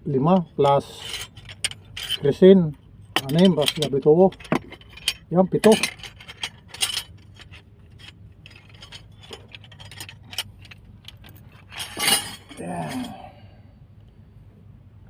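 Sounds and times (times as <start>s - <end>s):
metal tools clinking and rattling: 0.3s - 13.2s
wavering voice-like whine: 12.5s - 13.7s.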